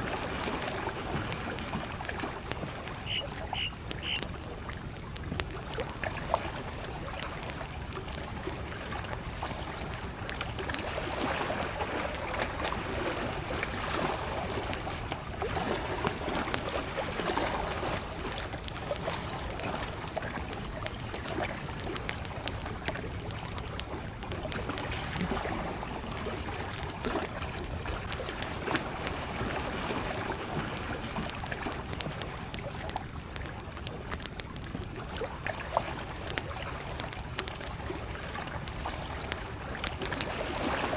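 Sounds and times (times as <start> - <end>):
campfire crackling: 0.0 - 40.9
lake waves lapping: 0.0 - 40.9.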